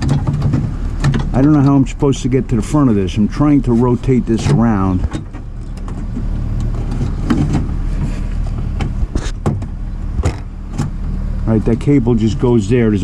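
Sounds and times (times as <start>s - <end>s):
clicks and knocks of car parts: 0.0s - 1.9s, 4.3s - 11.2s
steady low hum: 0.0s - 13.0s.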